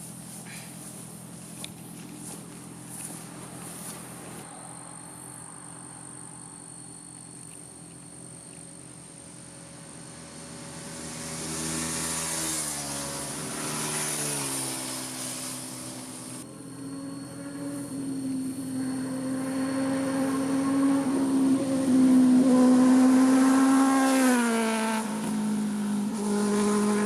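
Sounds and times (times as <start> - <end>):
motorcycle passing by: 8.4 - 27.0.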